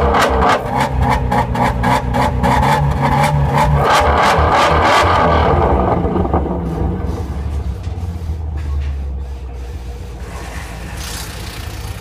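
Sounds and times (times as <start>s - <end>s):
car engine idling: 5.2s - 12.0s
hiss: 9.2s - 12.0s.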